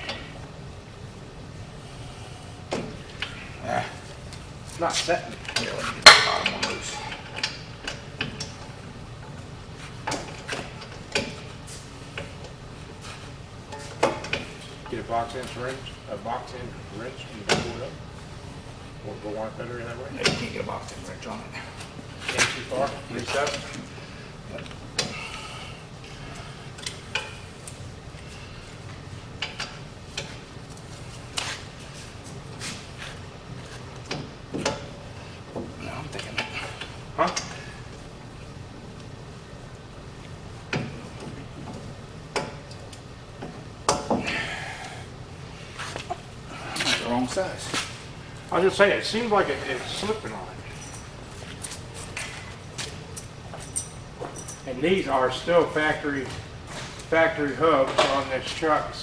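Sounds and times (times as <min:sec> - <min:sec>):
hand tools clinking on metal: 0:50.0 - 0:54.7.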